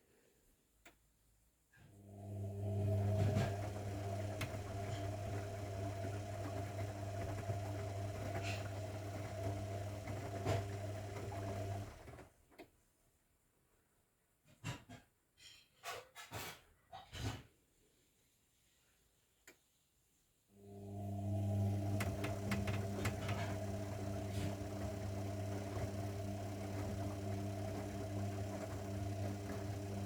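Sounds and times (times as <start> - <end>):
washing machine motor humming: 2.1 - 12.3, 20.6 - 30.0.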